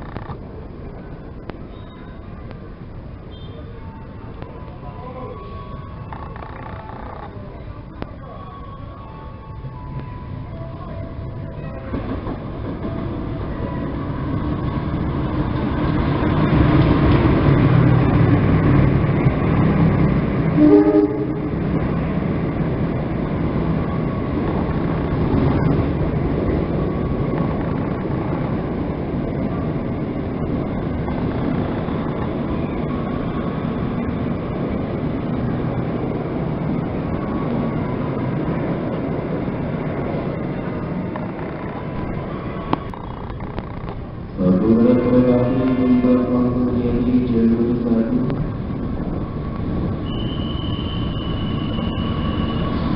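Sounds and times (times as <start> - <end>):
passenger train passing: 0.0 - 52.9
train horn: 20.5 - 21.6, 50.0 - 52.8.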